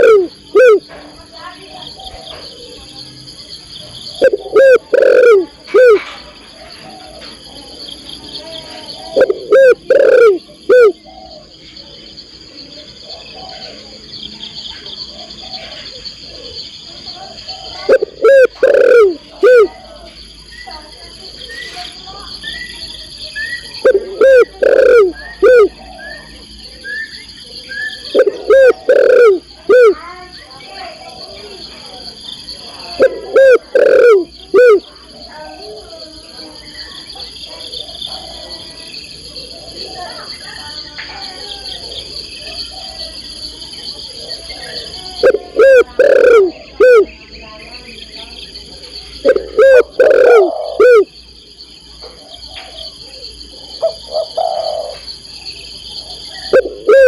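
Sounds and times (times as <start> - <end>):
dove cooing: 0.0 - 1.0, 4.0 - 7.4, 8.4 - 11.6, 12.8 - 14.0, 14.9 - 20.2, 22.7 - 26.4, 27.6 - 30.0, 32.7 - 35.3, 37.2 - 40.6, 41.4 - 47.2, 48.7 - 51.1, 52.1 - 55.1, 55.9 - 57.0
high-pitched insect trill: 0.0 - 57.0.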